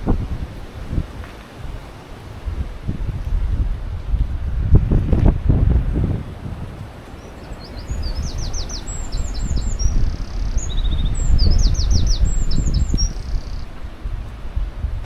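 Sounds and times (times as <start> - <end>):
wind buffeting microphone: 0.0 - 15.0
songbird singing: 6.2 - 14.7.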